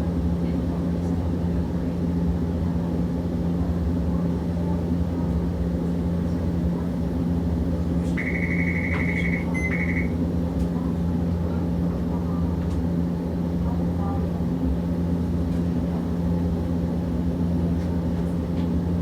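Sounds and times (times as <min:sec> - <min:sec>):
tram interior hum: 0:00.0 - 0:19.0
buzzer sounding: 0:08.2 - 0:10.1.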